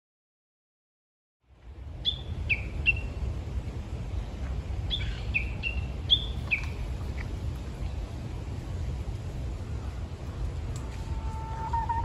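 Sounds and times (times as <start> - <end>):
wind rumbling on microphone: 1.4 - 12.0
songbird calling: 2.0 - 3.2, 4.8 - 7.3, 10.8 - 12.0.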